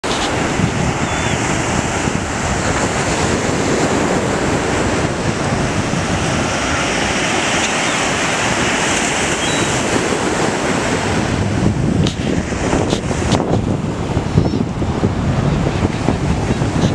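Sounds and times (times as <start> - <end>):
gulls calling: 0.0 - 2.8, 5.9 - 10.1
surf washing onto beach: 0.0 - 16.9
wind buffeting microphone: 0.0 - 16.9.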